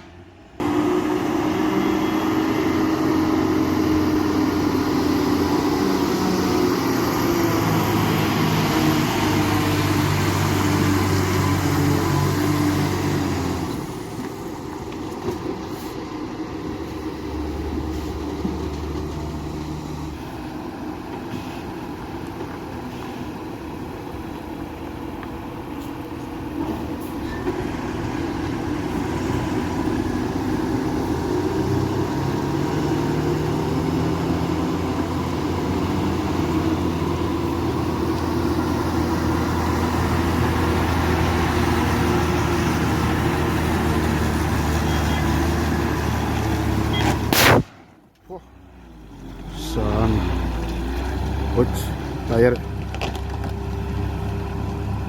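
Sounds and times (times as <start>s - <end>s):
heavy truck engine running: 0.0s - 55.0s.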